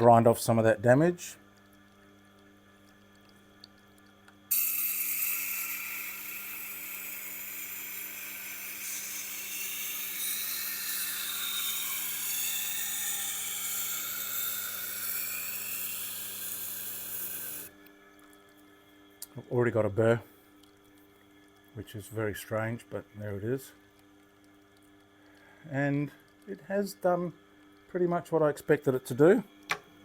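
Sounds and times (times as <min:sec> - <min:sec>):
knife grinding on wheel: 0:04.5 - 0:17.7.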